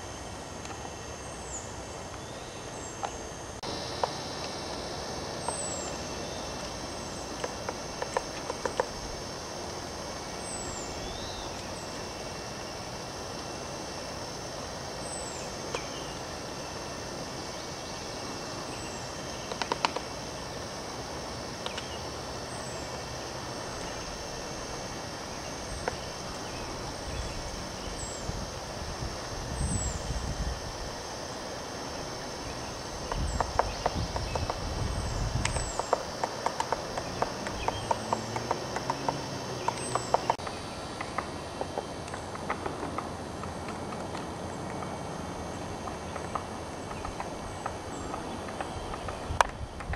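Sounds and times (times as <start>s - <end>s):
steady background hiss: 0.0s - 49.9s
woodpecker tapping on wood: 7.4s - 9.0s, 19.4s - 20.1s, 33.0s - 34.7s, 35.4s - 44.2s.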